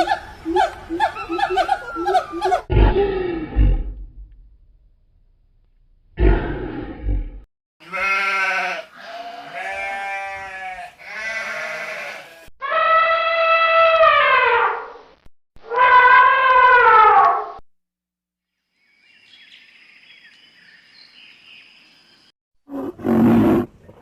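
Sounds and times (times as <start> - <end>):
animal calls: 0.0 - 2.7.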